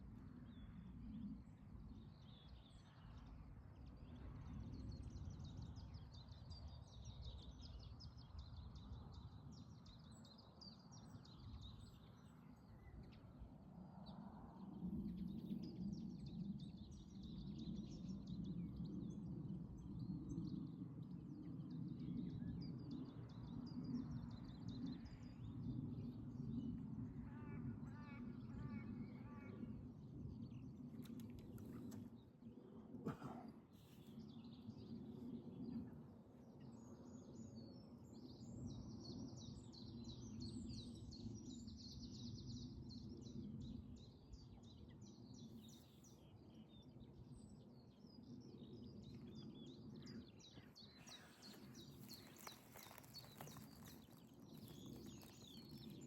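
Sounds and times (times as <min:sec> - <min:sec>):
small birds chirping: 0:48.5 - 0:56.0.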